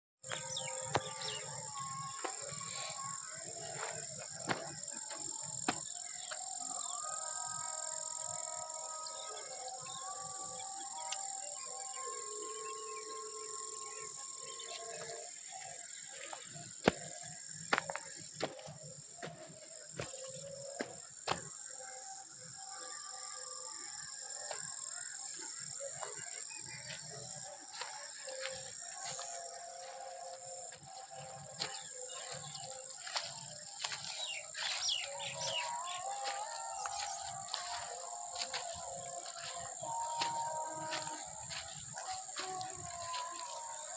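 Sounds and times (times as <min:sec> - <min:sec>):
birds calling: 0:00.2 - 0:07.0, 0:24.5 - 0:43.9
insects droning: 0:00.2 - 0:43.9.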